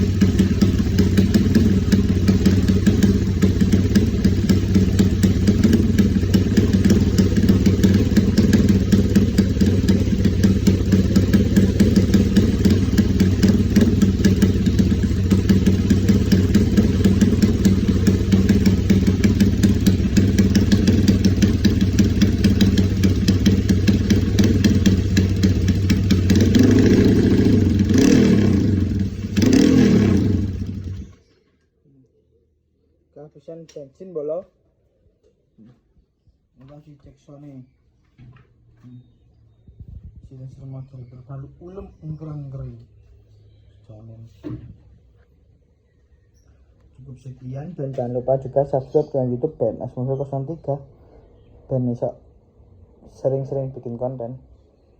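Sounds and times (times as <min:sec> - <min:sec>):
motorcycle engine idling and revving: 0:00.0 - 0:31.3.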